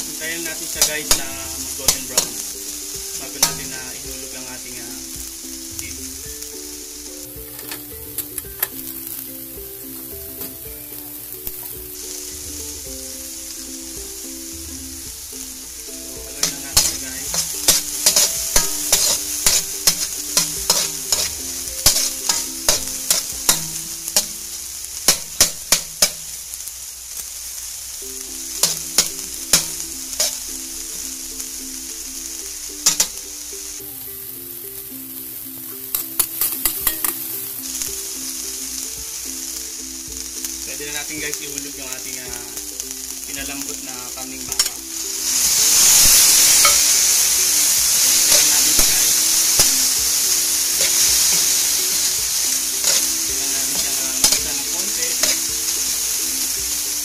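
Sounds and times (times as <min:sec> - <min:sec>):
food sizzling in hot oil: 0:00.0 - 0:57.0
metal ladle scraping a wok: 0:16.4 - 0:24.4.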